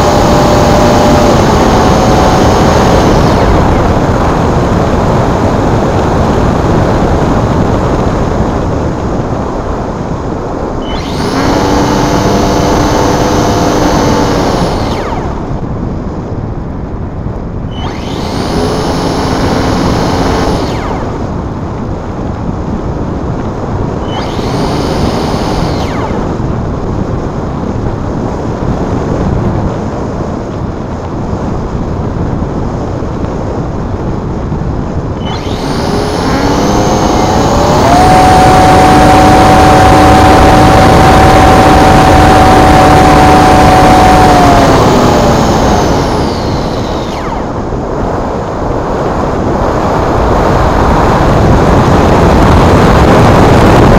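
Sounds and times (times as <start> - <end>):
electric motor whining: 0.0 - 8.5, 10.7 - 16.2, 17.6 - 22.0, 23.8 - 27.3, 35.1 - 53.9
wind noise on microphone: 0.0 - 53.9.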